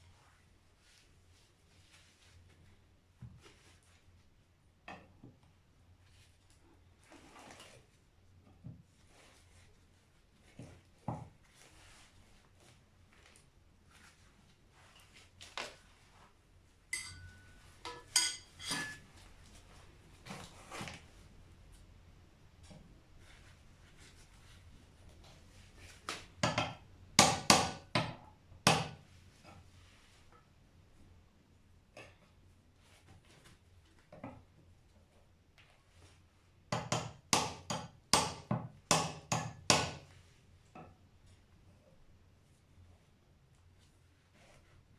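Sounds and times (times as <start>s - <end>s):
metal tools clinking: 16.9s - 19.1s.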